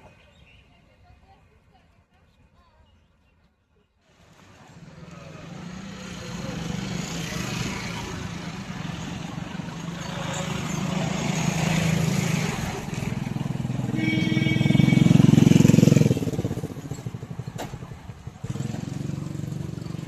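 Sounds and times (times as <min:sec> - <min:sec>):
vehicle passing by: 0:04.1 - 0:20.0.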